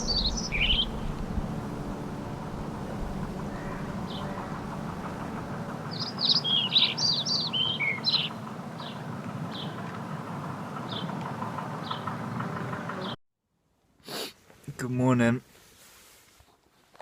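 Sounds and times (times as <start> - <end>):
songbird singing: 0.0 - 13.2
steady low hum: 0.0 - 13.2.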